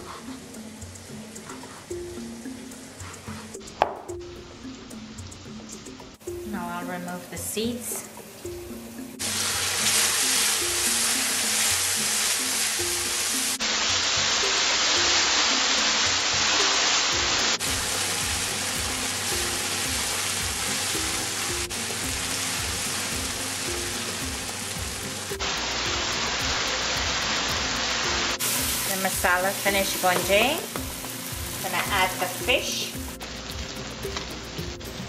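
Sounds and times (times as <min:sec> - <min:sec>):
soft background music: 0:00.0 - 0:35.0
paste sizzling in hot oil: 0:09.2 - 0:35.0.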